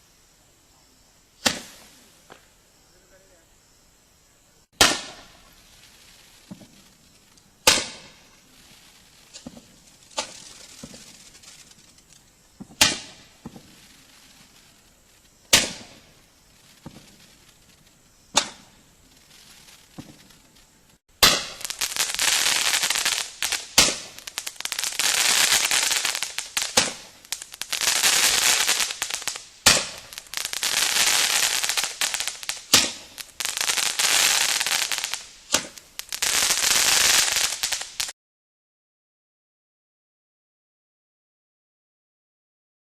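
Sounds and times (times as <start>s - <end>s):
fireworks crackling hiss: 0.0s - 38.2s
roman candle pops: 18.3s - 18.7s, 21.2s - 21.9s, 23.7s - 24.3s, 29.6s - 30.3s, 32.6s - 33.2s, 35.5s - 35.9s.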